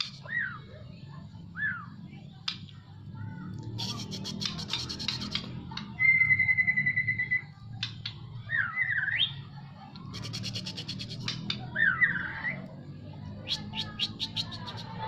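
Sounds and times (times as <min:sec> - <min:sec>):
songbird singing: 0:03.8 - 0:12.7, 0:13.3 - 0:14.9.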